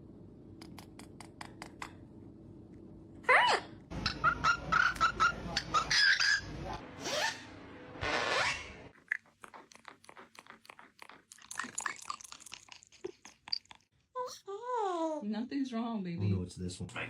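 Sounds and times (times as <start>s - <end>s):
parrot chirps: 3.3s - 7.5s
parrot squawks: 3.3s - 9.2s
crunching chewing clicks: 8.9s - 13.9s.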